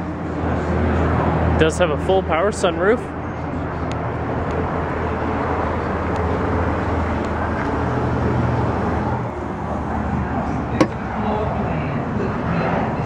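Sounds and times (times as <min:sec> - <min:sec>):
car engine idling: 0:05.8 - 0:11.9.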